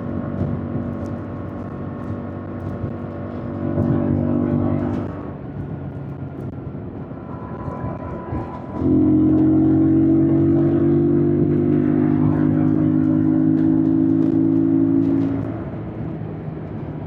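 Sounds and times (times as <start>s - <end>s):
motorcycle engine under throttle: 8.8s - 16.1s.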